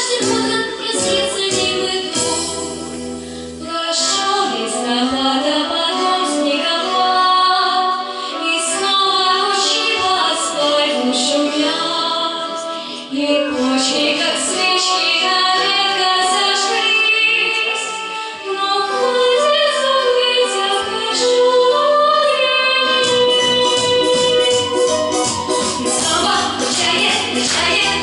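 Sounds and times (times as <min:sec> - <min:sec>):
woman singing pop song: 0:00.0 - 0:28.0
backing music with bass and beat: 0:23.0 - 0:28.0.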